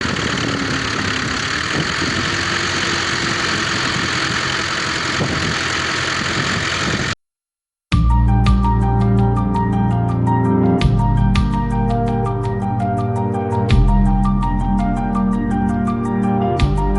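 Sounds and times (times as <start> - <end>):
tractor diesel engine running: 0.0 - 7.2
music with steady beat: 7.9 - 16.9.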